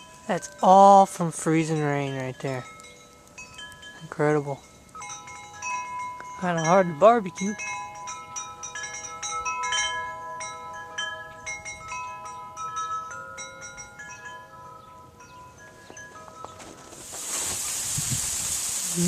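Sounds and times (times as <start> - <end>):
wind chimes ringing: 0.0 - 17.9.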